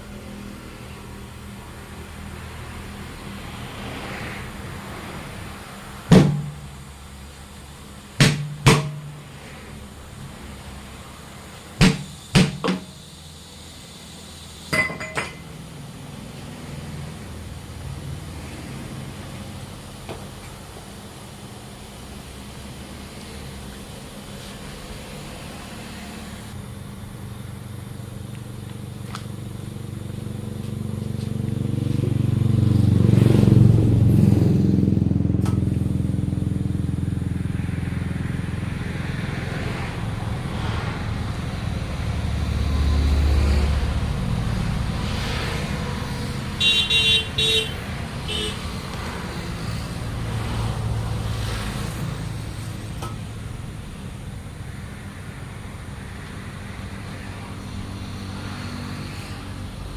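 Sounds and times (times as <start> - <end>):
vehicle engines passing: 0.0 - 59.9
short horn toots: 46.6 - 48.7.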